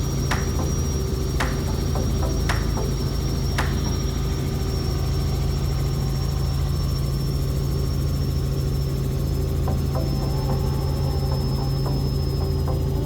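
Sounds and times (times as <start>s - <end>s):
helicopter drone: 0.0s - 13.0s
sharp clicks: 0.3s - 0.8s, 3.6s - 4.0s.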